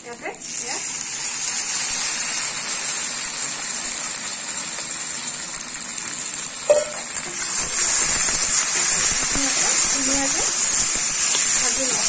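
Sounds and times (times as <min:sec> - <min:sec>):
onions and tomatoes sizzling: 0:00.0 - 0:12.0.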